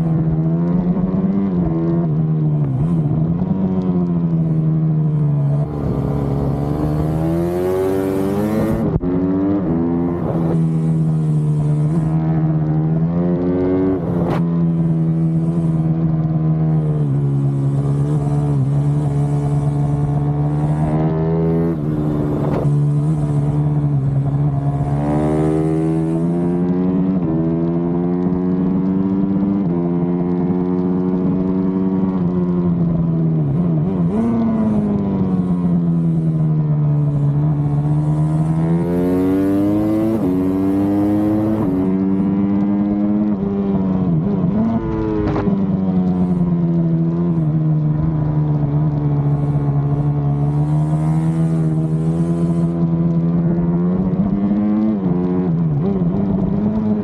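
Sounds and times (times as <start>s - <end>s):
motorcycle engine running hard: 0.0s - 57.0s.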